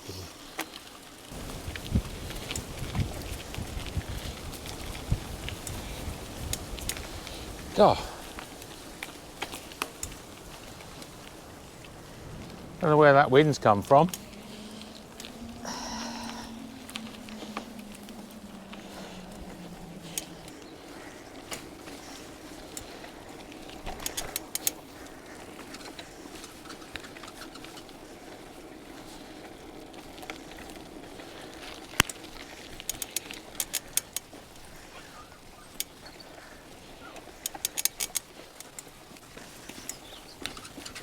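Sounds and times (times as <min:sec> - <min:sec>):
bicycle rolling on forest track: 0:00.0 - 0:41.0.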